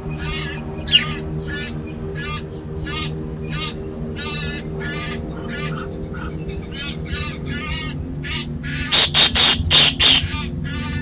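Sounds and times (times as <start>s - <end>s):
harsh bird calls: 0.0s - 11.0s.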